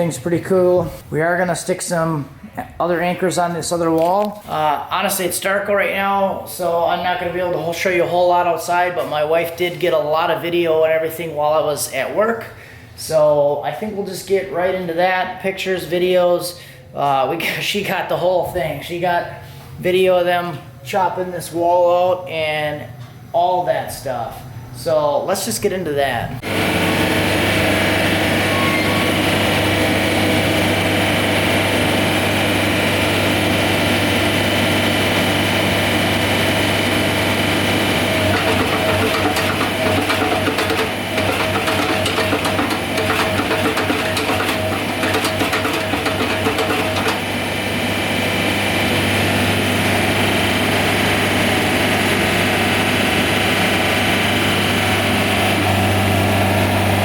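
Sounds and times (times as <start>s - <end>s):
engine humming: 36.5s - 48.4s
rapid clattering: 37.9s - 47.4s.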